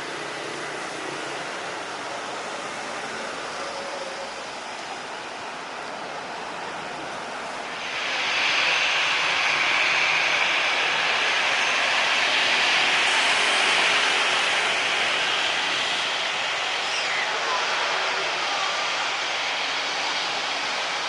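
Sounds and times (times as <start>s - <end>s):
jet engines rushing: 0.0s - 21.0s
faint high whine: 7.5s - 21.0s.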